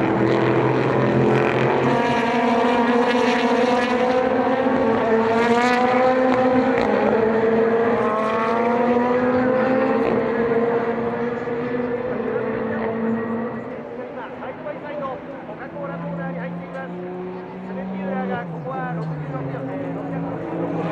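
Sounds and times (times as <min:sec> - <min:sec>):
race car engines at high revs: 0:00.0 - 0:20.9.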